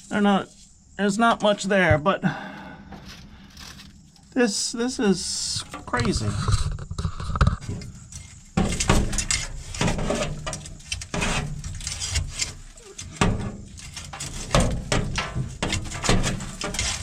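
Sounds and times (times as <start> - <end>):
knocking and scraping: 5.4 - 17.0.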